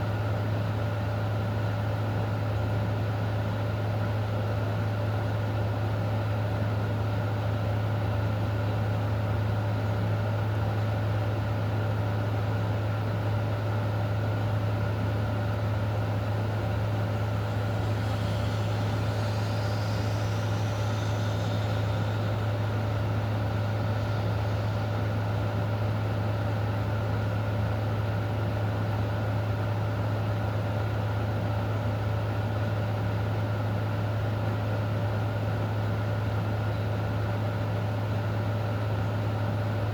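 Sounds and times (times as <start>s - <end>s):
low machine hum: 0.0s - 39.9s
faint high wavering sound: 16.7s - 25.4s
steady hiss: 16.8s - 25.8s.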